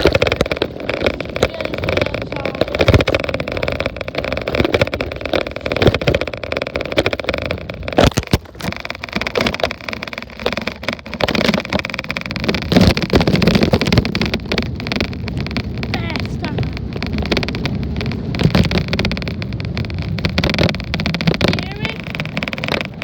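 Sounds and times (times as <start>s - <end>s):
bike knocks and rattles: 0.0s - 16.4s
wind rushing over microphone: 0.0s - 23.0s.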